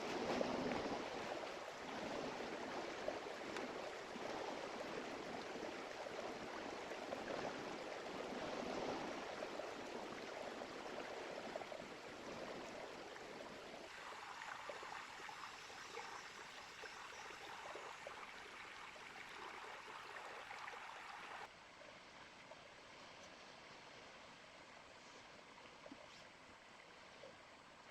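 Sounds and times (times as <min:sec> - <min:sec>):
river water rushing: 0:00.0 - 0:15.5.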